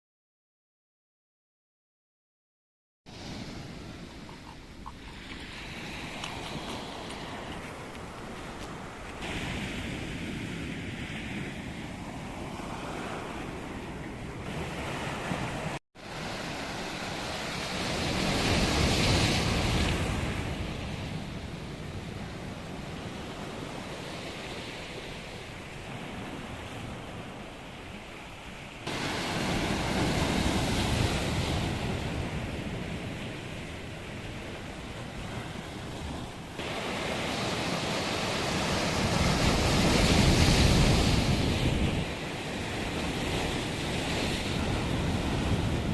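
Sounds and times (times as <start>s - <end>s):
sea waves breaking on shore: 3.1s - 45.9s
wind buffeting microphone: 28.9s - 45.9s.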